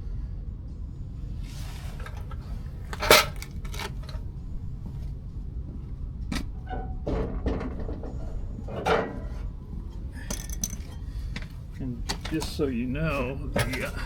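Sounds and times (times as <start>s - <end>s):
low hum: 0.0s - 13.7s
steel parts clanking: 1.7s - 4.3s, 6.4s - 12.7s.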